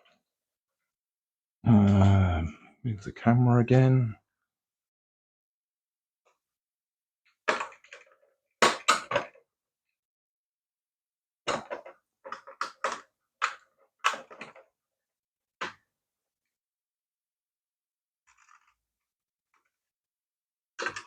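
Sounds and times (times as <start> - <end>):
plastic parts clicking: 11.5 - 14.8.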